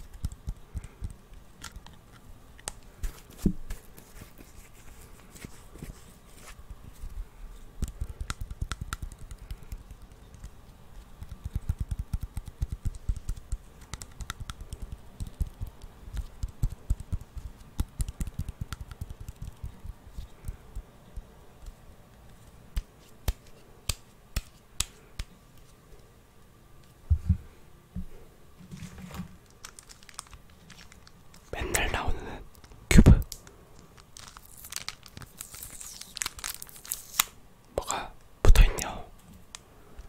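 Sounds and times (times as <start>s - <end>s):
fingertips tapping hard object: 7.8s - 10.6s, 11.2s - 20.0s.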